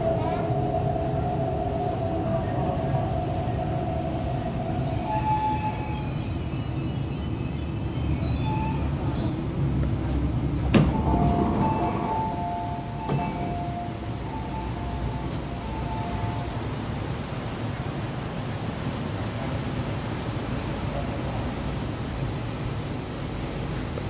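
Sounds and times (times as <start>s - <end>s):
train running gear rumble: 0.0s - 24.0s.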